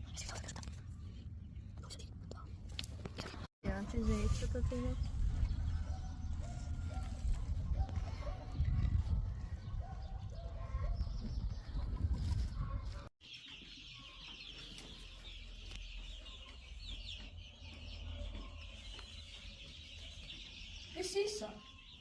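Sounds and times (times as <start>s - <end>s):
chicks peeping: 3.9s - 22.0s
chickens clucking: 5.3s - 21.9s.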